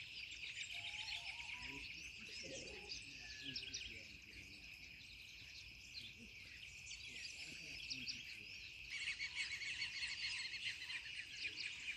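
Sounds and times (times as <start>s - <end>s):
high insect trill: 0.0s - 11.9s
wild birds chirping: 0.0s - 11.9s.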